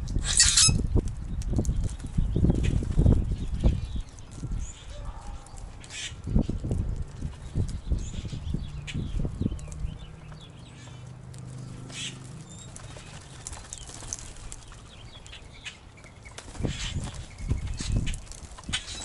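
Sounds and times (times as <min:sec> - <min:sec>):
wings flapping: 0:11.4 - 0:15.3, 0:16.3 - 0:19.0.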